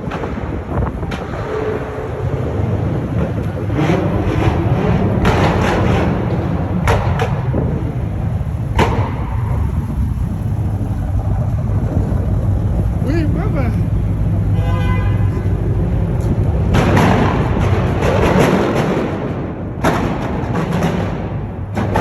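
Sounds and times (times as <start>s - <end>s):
car engine rumbling: 0.0s - 22.0s
sharp cracks: 3.4s - 13.1s.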